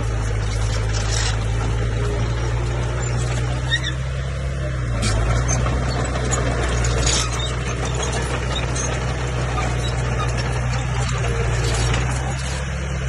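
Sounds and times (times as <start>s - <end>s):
bulldozer diesel engine running: 0.0s - 13.0s
high squeaks and clicks: 3.0s - 4.1s, 5.0s - 12.7s.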